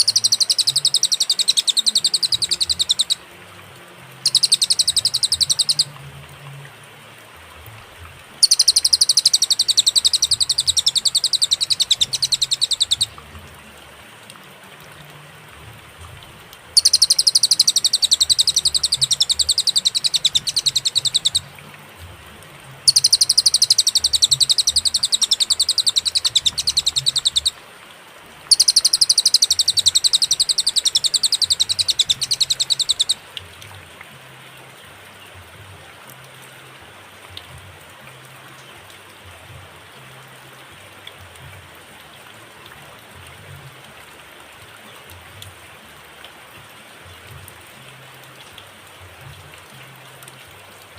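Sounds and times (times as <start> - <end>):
bird song with rattling trills: 0.0 - 3.2, 4.2 - 5.9, 8.4 - 13.2, 16.8 - 21.5, 22.8 - 27.6, 28.5 - 33.2.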